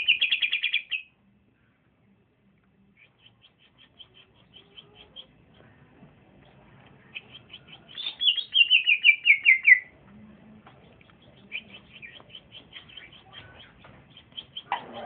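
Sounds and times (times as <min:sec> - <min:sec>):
songbird trilling and chirping: 0:07.1 - 0:09.9.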